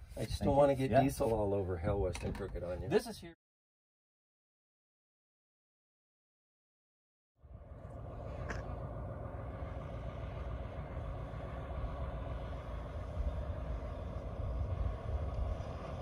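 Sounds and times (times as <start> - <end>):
diesel engine running: 7.4 - 16.0.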